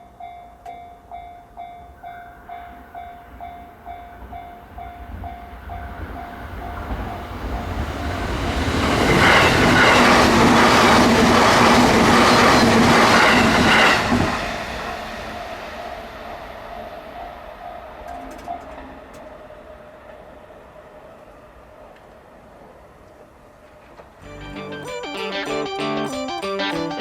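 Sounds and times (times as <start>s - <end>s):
level-crossing warning bell: 0.0s - 7.8s, 24.2s - 27.0s
train passing: 0.0s - 27.0s
wheels clicking over rail joints: 18.1s - 19.3s.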